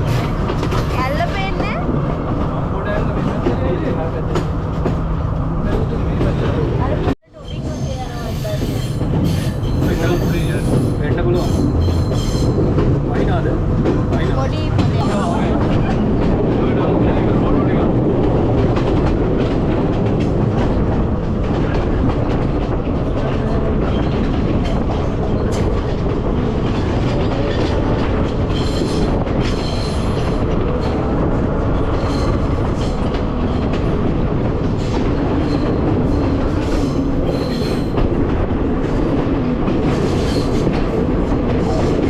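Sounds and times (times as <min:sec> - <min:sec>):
train wheels rumbling on track: 0:00.0 - 0:42.0
train wheels squealing: 0:07.4 - 0:12.7, 0:28.5 - 0:30.3, 0:31.9 - 0:33.0, 0:34.8 - 0:38.0.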